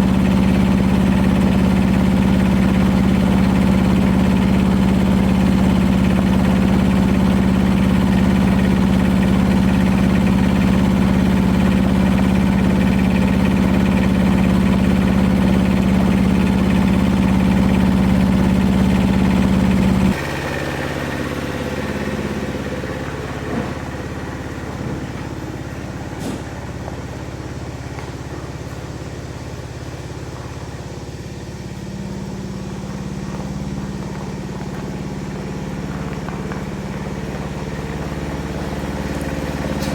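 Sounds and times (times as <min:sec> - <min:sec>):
engine humming: 0:00.0 - 0:39.9.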